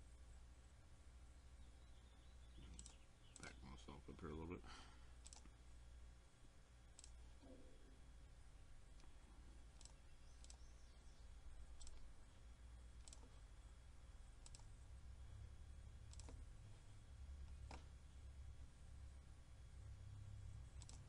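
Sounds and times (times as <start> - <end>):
faint low hum: 0.0 - 21.0
computer mouse clicking: 2.6 - 3.5, 5.2 - 5.6, 6.9 - 7.3, 8.9 - 10.9, 11.7 - 12.1, 13.0 - 13.4, 14.4 - 14.8, 16.0 - 16.5, 17.4 - 18.0, 20.6 - 21.0.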